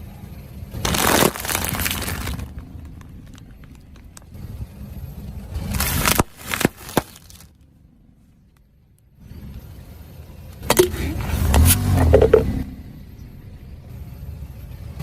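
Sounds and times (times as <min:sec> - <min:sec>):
car rumbling over objects: 0:00.7 - 0:04.7, 0:10.6 - 0:12.7
objects cracking and crunching: 0:00.8 - 0:04.4, 0:05.6 - 0:07.6.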